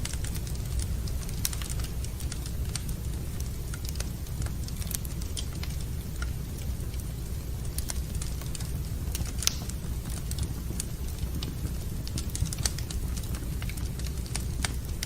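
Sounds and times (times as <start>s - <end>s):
low fire rumble: 0.0s - 15.0s
wood fire crackling and popping: 0.0s - 15.0s.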